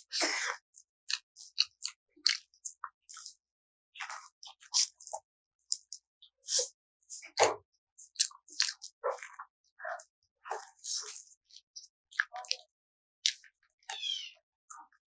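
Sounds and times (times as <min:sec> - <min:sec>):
close chewing with mouth smacks: 0:01.1 - 0:03.3, 0:04.0 - 0:05.9, 0:08.1 - 0:09.3, 0:10.5 - 0:12.6.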